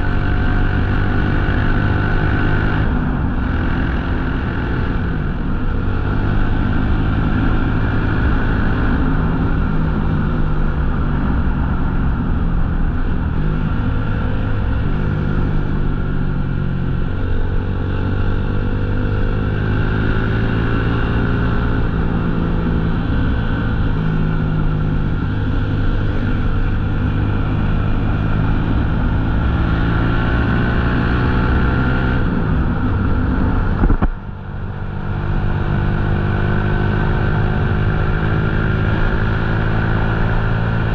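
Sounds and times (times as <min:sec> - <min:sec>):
motorcycle engine revving: 0:00.0 - 0:40.9
wind noise rushing: 0:30.8 - 0:35.4.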